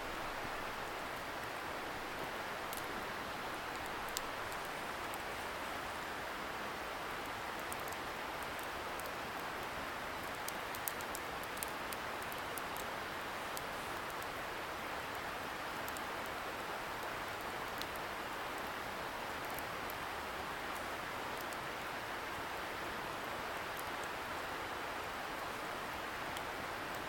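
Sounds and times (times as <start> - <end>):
wood fire crackling and popping: 0.8 - 5.2, 7.6 - 12.9.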